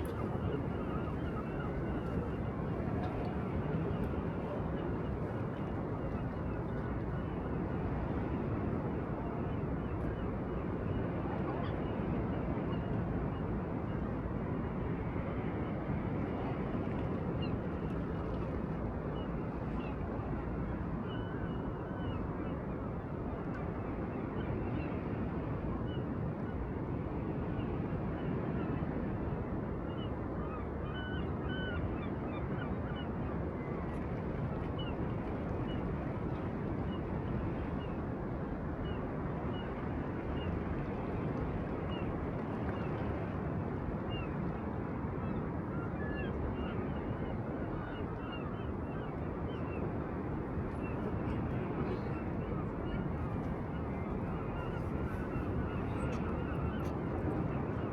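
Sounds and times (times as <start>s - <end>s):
wind: 0.0s - 57.9s.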